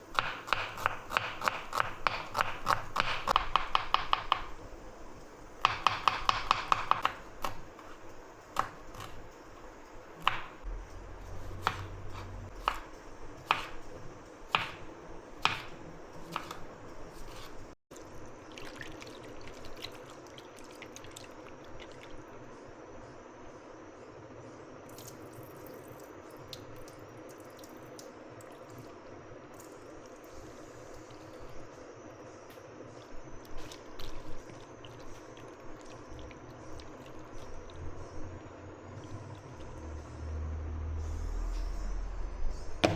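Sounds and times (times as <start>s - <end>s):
knife chopping on cutting board: 0.1s - 4.6s, 5.6s - 7.6s, 10.2s - 10.6s, 11.4s - 13.8s, 14.5s - 17.6s.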